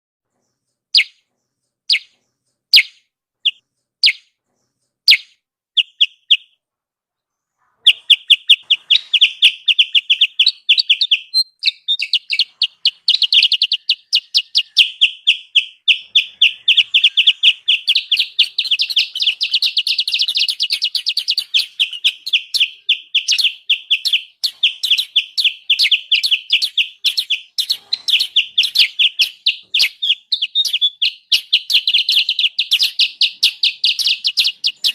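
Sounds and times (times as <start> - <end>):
bulbul calling: 0.9 - 1.2, 1.9 - 4.4, 5.1 - 6.6, 7.8 - 34.9
sharp bird notes: 1.0 - 1.2, 1.9 - 4.3, 5.1 - 6.6, 7.8 - 34.9
fast noisy bird chatter: 7.8 - 34.9.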